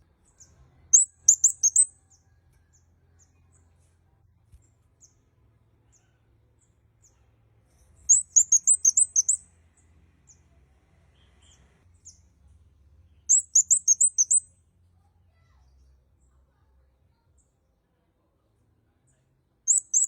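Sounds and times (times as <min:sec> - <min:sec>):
songbird chirping: 0:00.0 - 0:14.9, 0:18.9 - 0:20.0.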